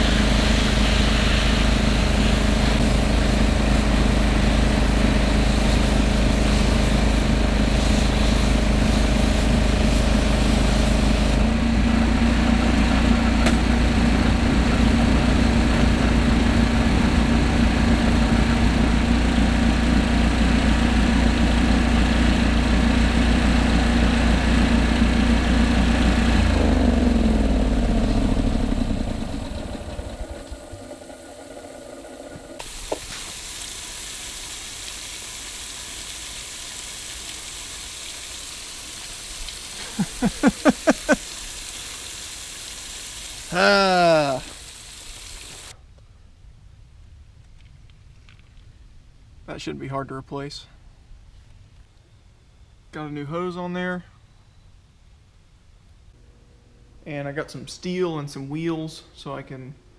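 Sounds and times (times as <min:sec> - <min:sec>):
engine winding down: 0:00.0 - 0:34.9, 0:39.7 - 0:42.0
pressure washer engine and pump: 0:00.0 - 0:45.8
high hiss: 0:32.0 - 0:45.8.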